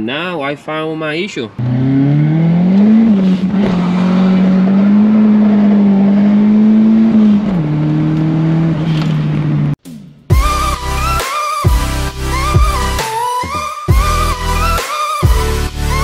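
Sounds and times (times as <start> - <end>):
car engine revving in cabin: 1.6 - 9.8.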